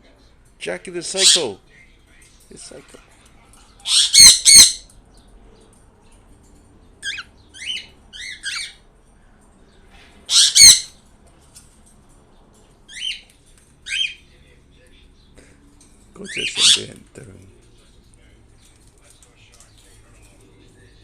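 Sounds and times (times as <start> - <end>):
birds squawking: 1.1 - 1.6, 3.8 - 4.9, 7.0 - 8.9, 10.1 - 11.0, 12.9 - 14.3, 16.2 - 17.3.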